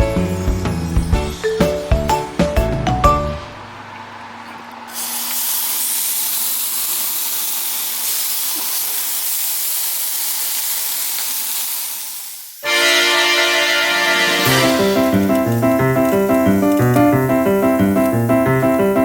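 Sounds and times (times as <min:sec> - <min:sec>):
meat sizzling on griddle: 0:05.0 - 0:12.7, 0:14.2 - 0:19.0.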